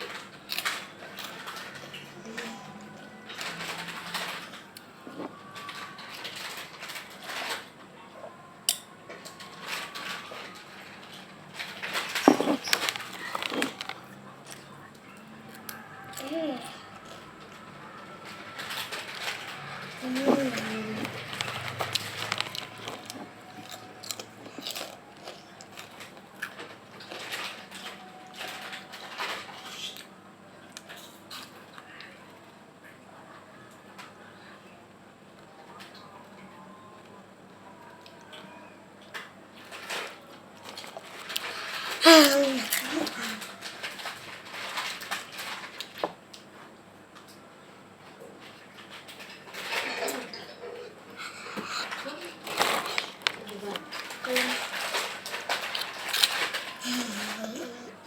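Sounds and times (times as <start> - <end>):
crunching and chewing snack: 0.0 - 7.6, 9.3 - 30.1, 37.9 - 46.5, 48.8 - 57.9
person crunching crispy snack: 19.6 - 27.2.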